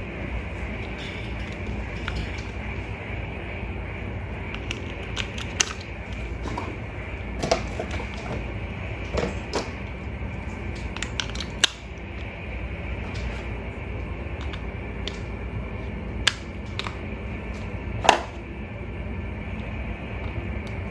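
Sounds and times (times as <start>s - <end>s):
steady low hum: 0.0s - 20.9s
plastic toy parts clicking: 4.7s - 5.9s.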